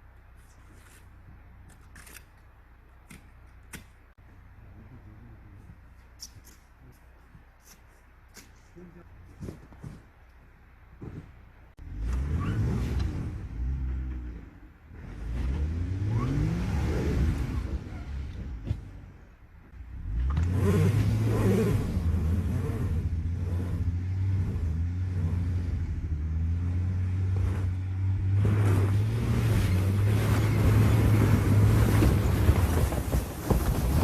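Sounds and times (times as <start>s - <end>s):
engine revving: 11.8s - 19.1s, 19.8s - 33.0s.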